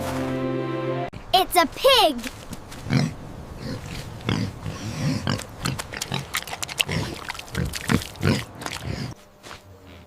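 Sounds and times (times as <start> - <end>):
pig grunting and snuffling: 2.8 - 9.2.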